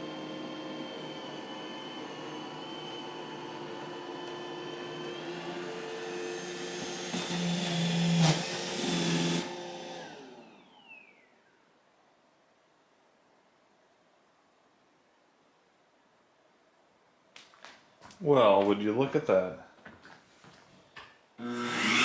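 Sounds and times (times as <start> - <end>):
robot vacuum motor whine: 0.0 - 11.3, 21.4 - 22.0.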